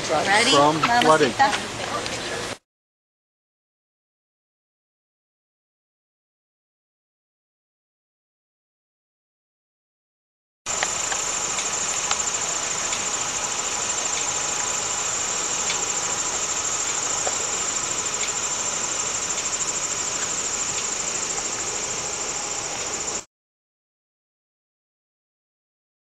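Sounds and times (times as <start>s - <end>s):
insects chirring: 10.7s - 23.3s.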